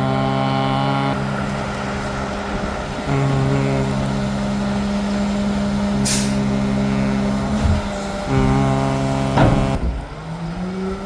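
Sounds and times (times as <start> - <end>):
garbage truck diesel engine running: 0.0 - 11.0
air brake hiss: 6.0 - 6.5
low thump: 7.5 - 10.3.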